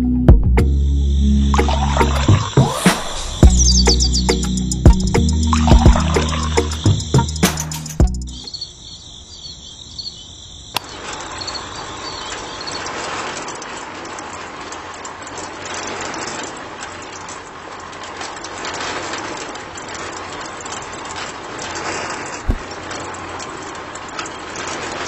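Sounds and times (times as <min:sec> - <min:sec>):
low thump: 0:22.4 - 0:22.6.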